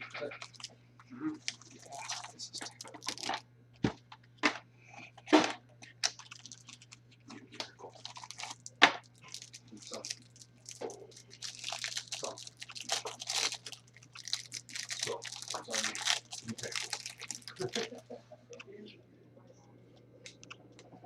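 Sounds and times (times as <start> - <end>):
foil wrappers crinkling and tearing: 0.1 - 0.7, 1.4 - 3.4, 5.9 - 7.0, 7.6 - 18.0
sharp clicks and snaps: 20.2 - 20.9.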